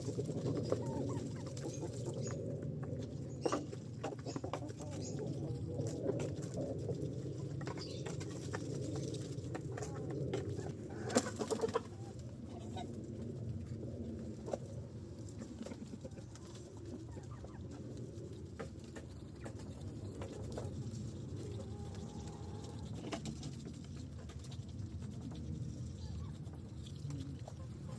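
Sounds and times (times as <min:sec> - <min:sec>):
geese ducks and chickens calling: 0:00.4 - 0:02.4, 0:09.7 - 0:13.0, 0:15.4 - 0:18.0, 0:18.9 - 0:23.5, 0:25.6 - 0:27.9.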